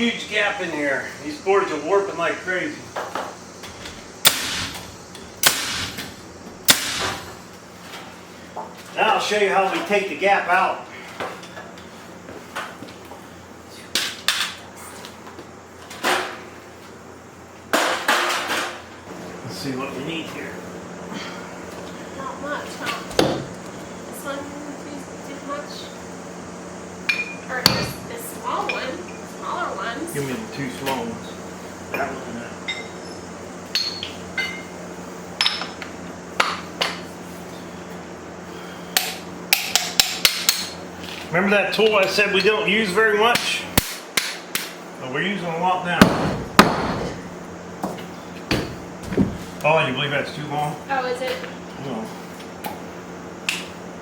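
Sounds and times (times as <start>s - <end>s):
metal tools clinking and knocking: 33.8s - 34.7s
wooden boards and tools knocking: 46.0s - 49.6s.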